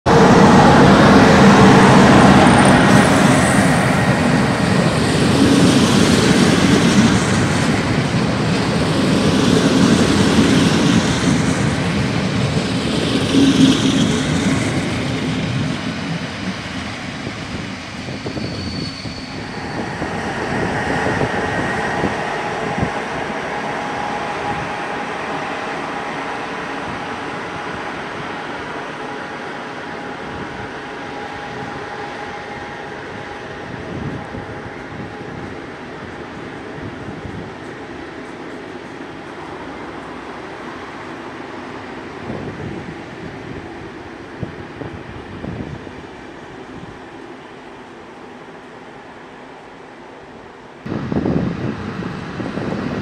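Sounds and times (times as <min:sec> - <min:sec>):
electric locomotive humming: 0:00.0 - 0:53.0
train wheels rumbling on rails: 0:00.0 - 0:53.0.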